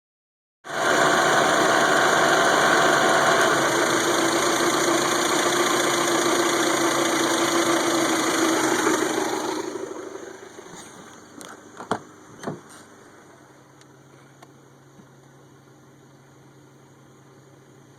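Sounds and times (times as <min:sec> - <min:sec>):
car engine running: 0:00.7 - 0:11.4.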